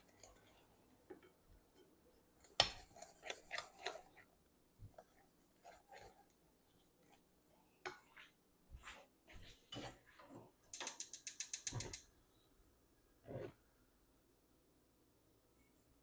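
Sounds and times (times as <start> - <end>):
ratchet-like clicks: 10.7 - 12.1.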